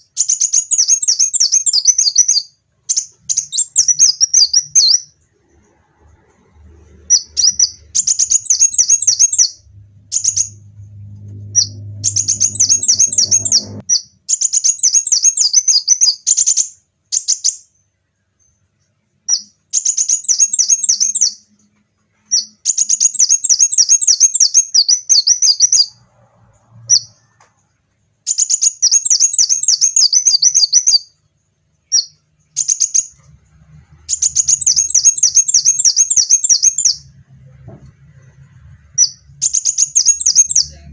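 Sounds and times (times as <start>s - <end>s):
bird singing chirping trills: 0.0s - 18.6s, 19.3s - 21.6s, 22.2s - 26.0s, 28.3s - 31.2s, 31.8s - 33.2s, 33.8s - 37.2s, 38.5s - 40.9s.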